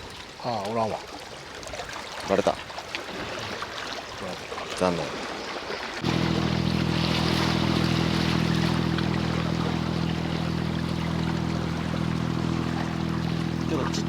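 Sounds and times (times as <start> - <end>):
wash of seawater: 0.3 - 14.0
boat engine droning: 6.0 - 14.0.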